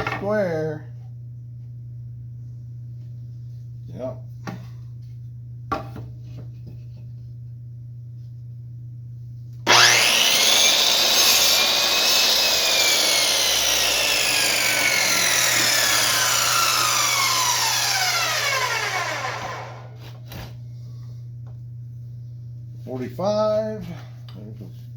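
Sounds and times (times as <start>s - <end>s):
chop saw motor whine: 9.7s - 20.2s.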